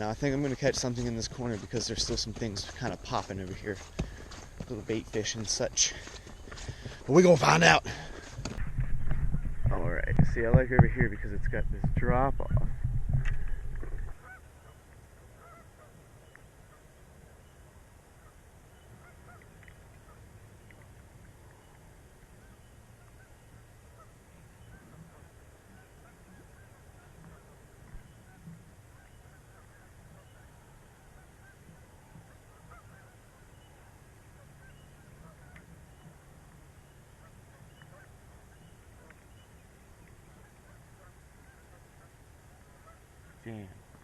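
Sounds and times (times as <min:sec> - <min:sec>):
faint bird chirps: 0:17.3 - 0:41.7.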